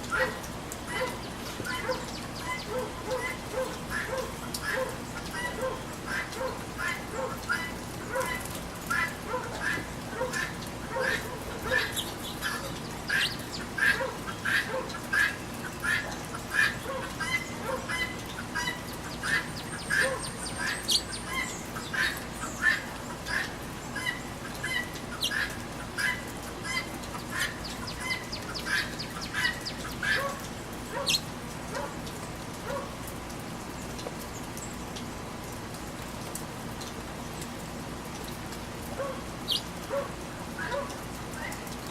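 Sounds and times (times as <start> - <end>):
rain hiss: 0.0 - 41.9
guinea hen squawking: 0.1 - 31.3, 39.5 - 39.7.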